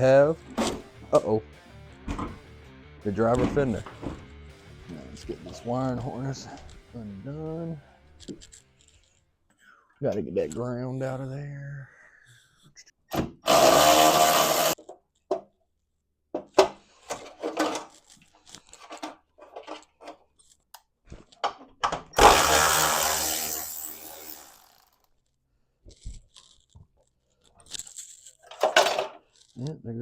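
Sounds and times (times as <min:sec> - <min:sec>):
cordless power tool whirring: 0:13.4 - 0:14.8, 0:22.2 - 0:25.0.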